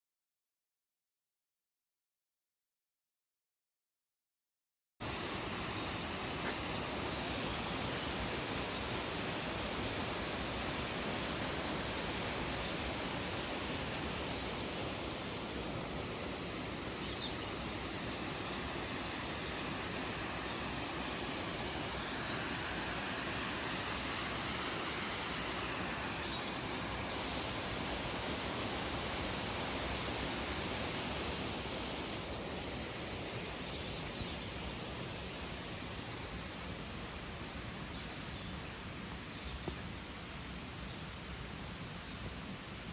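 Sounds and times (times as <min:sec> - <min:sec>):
waterfall rushing: 0:05.0 - 0:34.1.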